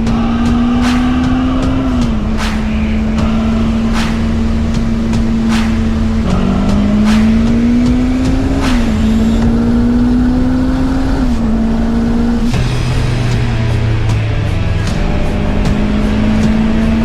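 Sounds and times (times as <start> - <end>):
car engine accelerating through gears: 0.0 - 12.6.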